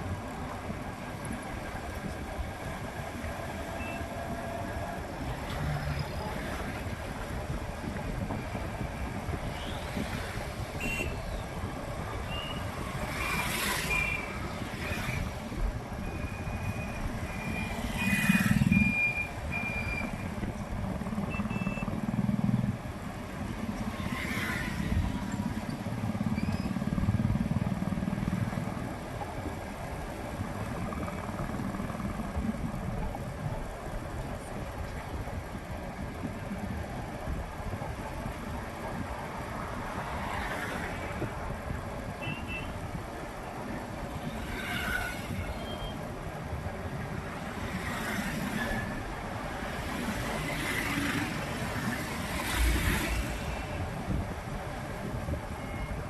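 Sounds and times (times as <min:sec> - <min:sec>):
motorbike engine and road rumble: 0:00.0 - 0:56.0
vehicles swooshing past: 0:12.3 - 0:15.6, 0:47.2 - 0:53.9.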